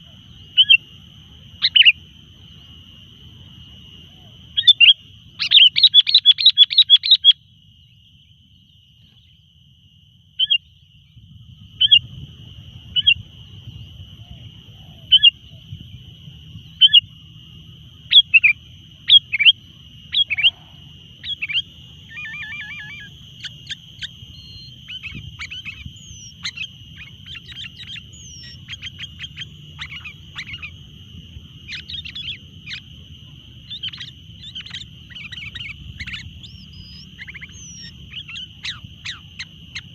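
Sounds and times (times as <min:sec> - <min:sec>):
bird chirping and chattering: 0:05.4 - 0:07.4, 0:21.2 - 0:30.8, 0:31.7 - 0:32.8, 0:33.7 - 0:39.9
steady high-pitched tone: 0:18.1 - 0:39.9.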